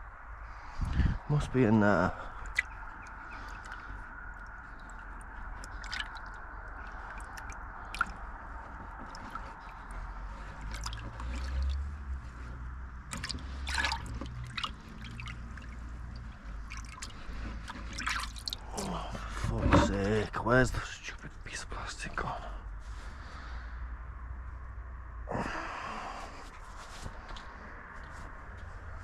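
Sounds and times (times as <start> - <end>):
hands rummaging in engine bay: 19.1 - 20.4.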